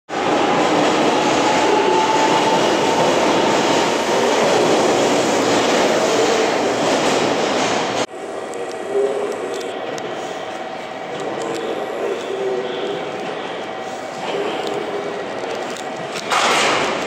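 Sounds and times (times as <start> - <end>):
train wheel and rail noise: 0.1 - 17.0.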